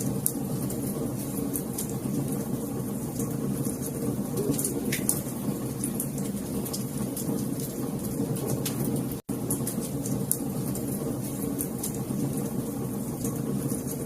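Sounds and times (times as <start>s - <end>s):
fire crackling: 0.0s - 14.0s.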